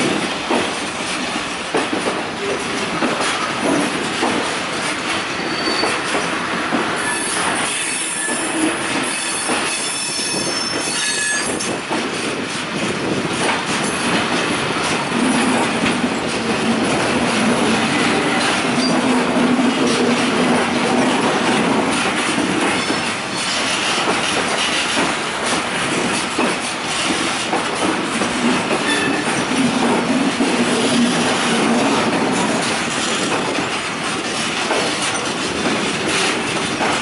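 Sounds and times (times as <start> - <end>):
train wheels clattering over rails: 0.0 - 37.0
high wheel squeal: 5.3 - 6.1, 7.0 - 11.6.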